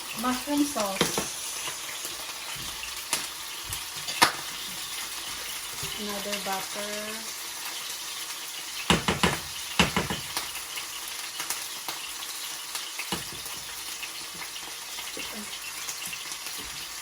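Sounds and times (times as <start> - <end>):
butter sizzling in a pan: 0.0 - 17.0
utensil knocking against pan: 8.9 - 10.4.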